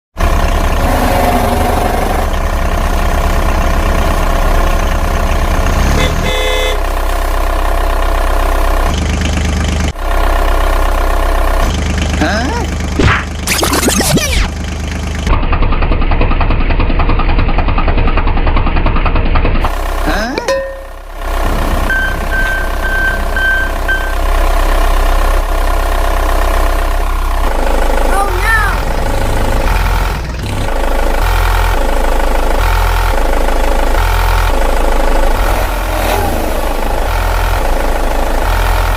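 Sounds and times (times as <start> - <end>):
vehicle engine running: 0.2 - 38.9
short horn toot: 6.0 - 6.8
high-pitched reversing beeps: 13.5 - 14.5, 21.8 - 24.3.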